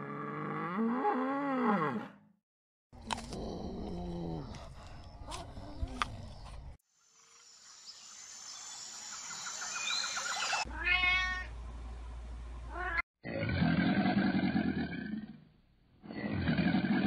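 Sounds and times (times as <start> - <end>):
forest ambience hiss: 6.9 - 10.6
chirping calls: 8.5 - 10.7
kitten meowing: 10.7 - 11.5.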